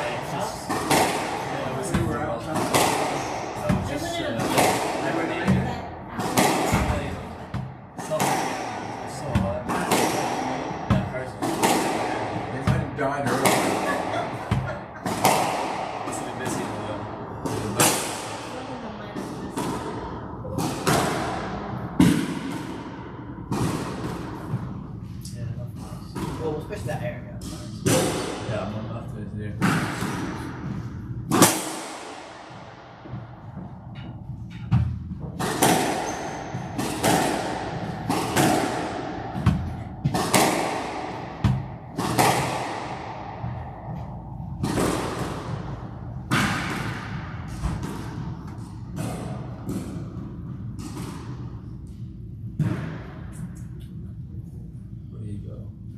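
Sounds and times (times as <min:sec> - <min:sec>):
ball slapping off walls: 0:00.0 - 0:16.8, 0:34.7 - 0:51.6
squash ball hits: 0:00.0 - 0:25.1, 0:27.4 - 0:28.7, 0:29.6 - 0:53.6
ball smacking court walls: 0:29.6 - 0:51.6.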